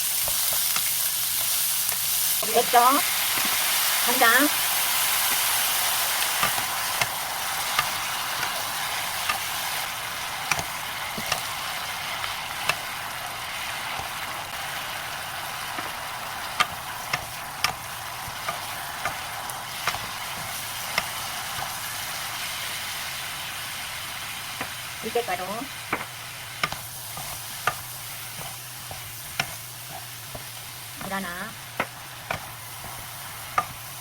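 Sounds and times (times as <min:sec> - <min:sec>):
stems sizzling in a pan: 0:00.0 - 0:34.0
utensil tapping against pan: 0:27.6 - 0:31.2, 0:31.8 - 0:33.8.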